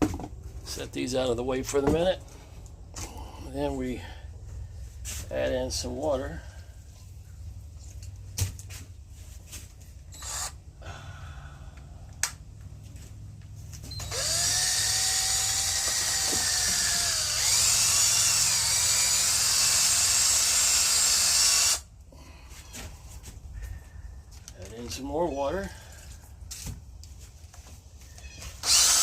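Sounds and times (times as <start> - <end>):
electric drill mixing concrete: 10.2 - 10.6, 13.9 - 21.9, 28.5 - 29.0.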